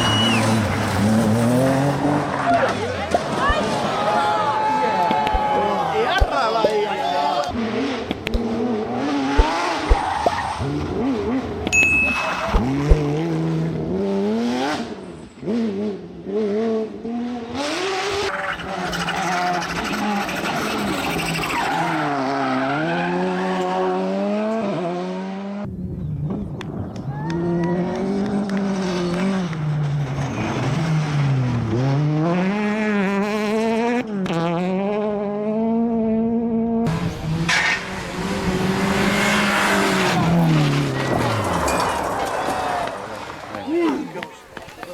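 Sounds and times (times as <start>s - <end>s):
rally car engines revving: 0.0s - 44.9s
tyres on gravel: 36.9s - 44.9s.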